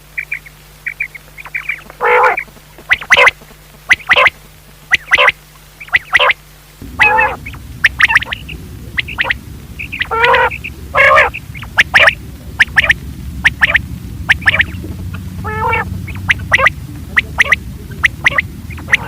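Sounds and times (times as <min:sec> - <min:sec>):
low steady rumble: 0:00.0 - 0:19.0
quail calling: 0:00.2 - 0:06.4, 0:09.0 - 0:19.0.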